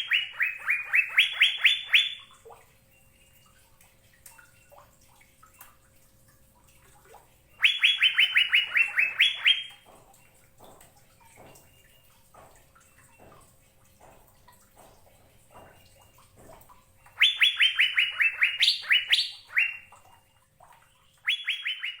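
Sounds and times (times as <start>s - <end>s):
bird singing whistled notes: 0.0s - 2.3s, 7.6s - 9.8s, 17.2s - 19.9s, 21.2s - 22.0s.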